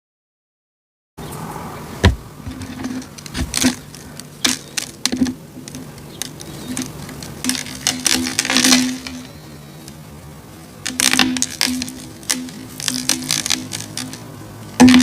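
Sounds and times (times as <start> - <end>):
crunchy snacks being crushed: 10.8 - 15.0.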